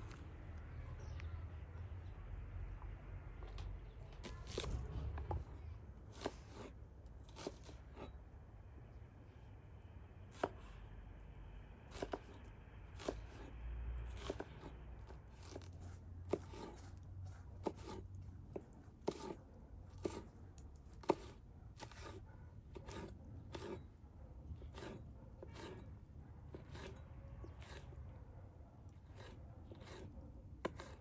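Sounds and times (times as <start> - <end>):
knife chopping on cutting board: 11.9 - 12.4, 13.0 - 13.5, 14.2 - 14.7, 16.3 - 16.9, 17.6 - 19.4.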